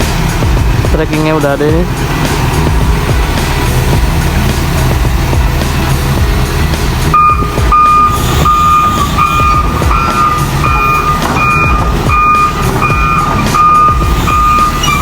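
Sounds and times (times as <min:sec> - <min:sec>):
diesel engine running: 0:00.0 - 0:15.0
reversing alarm beeping: 0:07.1 - 0:15.0.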